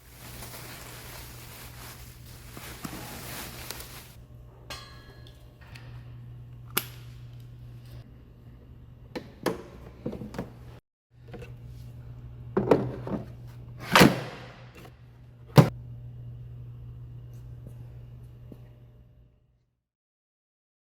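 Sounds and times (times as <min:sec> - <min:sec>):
low steady hum: 0:14.7 - 0:19.6.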